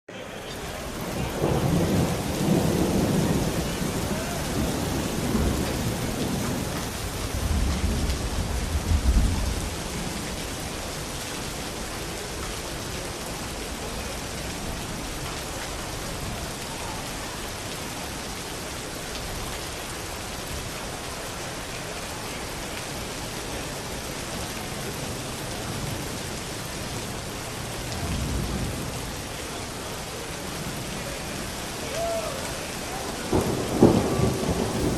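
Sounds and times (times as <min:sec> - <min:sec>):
steady rain: 0:00.1 - 0:34.9
rolling thunder rumble: 0:00.5 - 0:10.7, 0:33.2 - 0:34.9.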